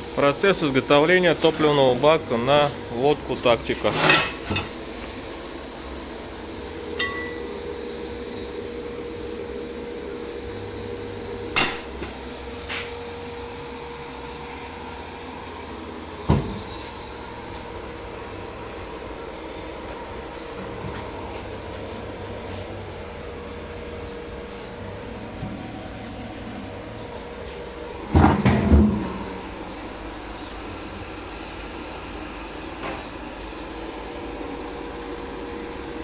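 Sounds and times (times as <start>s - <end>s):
machine hum: 0.0s - 36.0s
sharp metal knocks: 11.6s - 12.1s.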